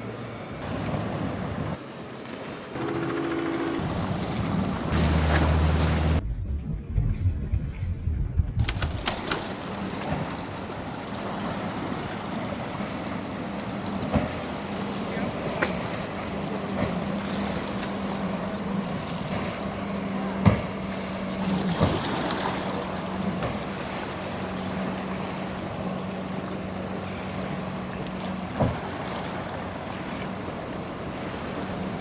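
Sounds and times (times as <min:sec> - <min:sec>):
boat engines running: 0:00.0 - 0:06.2, 0:08.6 - 0:32.0
waves and surf: 0:00.0 - 0:06.2, 0:08.6 - 0:32.0
wind on the microphone: 0:06.2 - 0:09.3.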